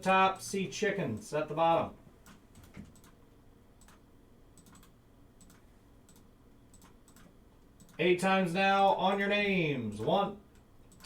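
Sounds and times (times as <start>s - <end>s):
computer keyboard clicking: 2.2s - 3.2s, 3.8s - 4.0s, 4.6s - 8.0s.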